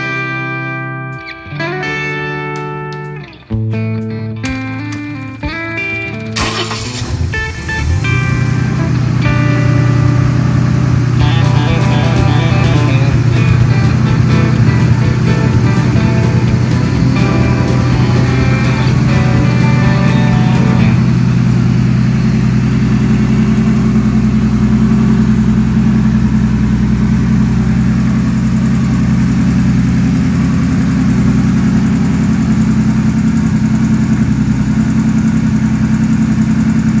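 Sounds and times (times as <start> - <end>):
music: 0.0 - 21.4
generator engine running steadily: 4.5 - 37.0.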